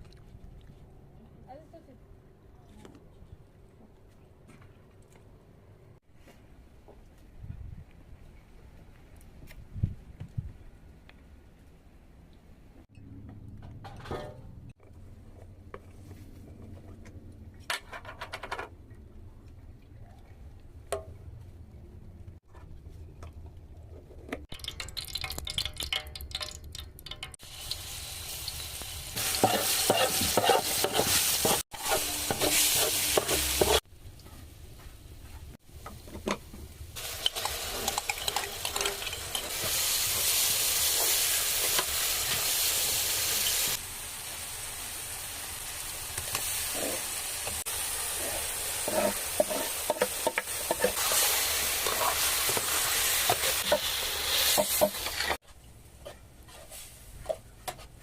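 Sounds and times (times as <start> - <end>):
food sizzling in a pan: 27.4 - 33.8, 37.0 - 55.4.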